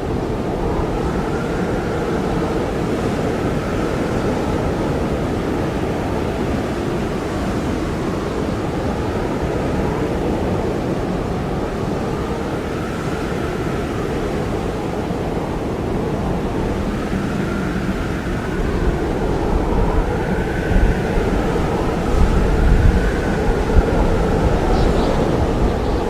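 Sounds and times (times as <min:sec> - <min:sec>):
blizzard wind blowing hard: 0:00.0 - 0:26.0.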